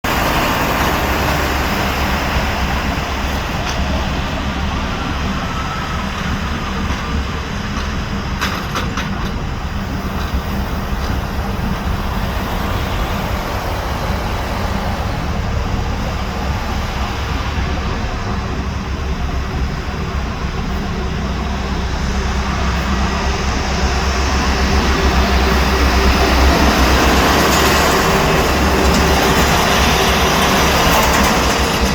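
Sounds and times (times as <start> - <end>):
airplane engine and air noise: 0.0 - 31.9.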